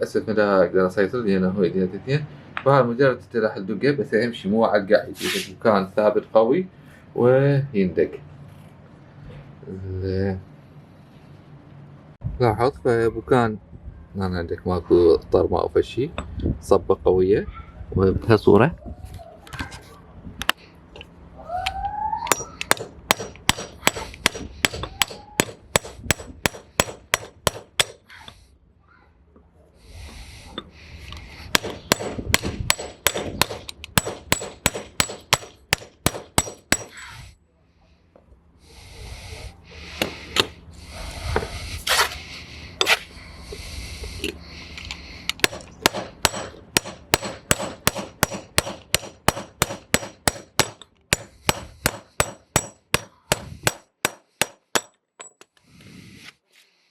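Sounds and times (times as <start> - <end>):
hammer striking metal: 22.3 - 28.0, 31.5 - 37.0, 45.4 - 55.4.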